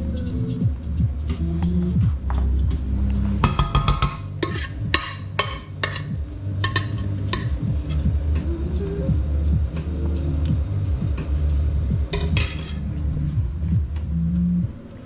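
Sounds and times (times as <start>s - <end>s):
steady low hum: 0.0s - 15.0s
utensils knocking on pot and dishes: 3.4s - 8.0s, 12.2s - 12.8s.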